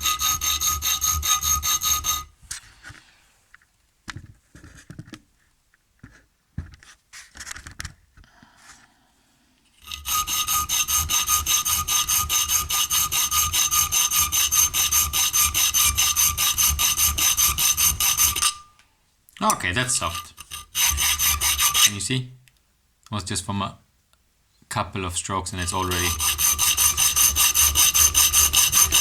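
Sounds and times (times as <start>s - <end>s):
file rasping back and forth: 0.0s - 2.3s, 9.8s - 18.6s, 19.6s - 22.1s, 25.5s - 29.0s.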